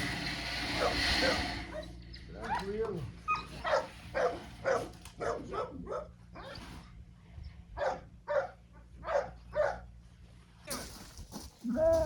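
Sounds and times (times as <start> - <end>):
dog barking: 3.6 - 6.1, 7.8 - 9.9.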